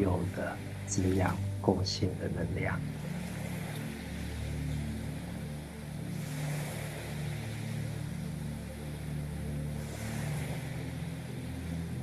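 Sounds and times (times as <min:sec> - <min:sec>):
ambient meditation music: 0:00.0 - 0:12.0
low sustained drone: 0:00.0 - 0:12.0
soft rushing swells: 0:00.0 - 0:12.0.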